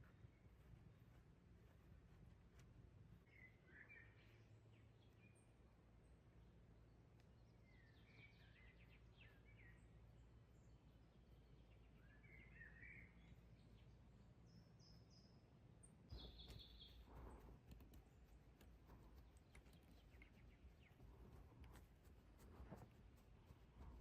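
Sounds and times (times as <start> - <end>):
faint birdsong chirps: 0.0 - 24.0
light clicks and rustles: 16.1 - 24.0.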